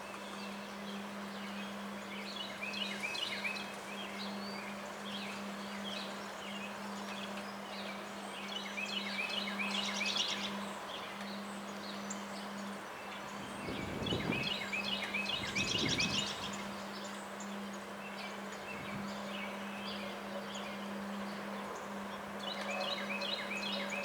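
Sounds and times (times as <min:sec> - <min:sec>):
strong wind rushing: 0:13.4 - 0:14.5.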